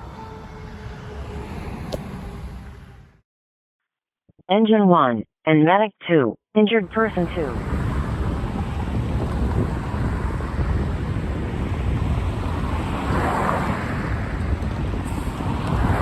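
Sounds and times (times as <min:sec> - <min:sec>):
steady rushing noise: 0:06.9 - 0:16.0.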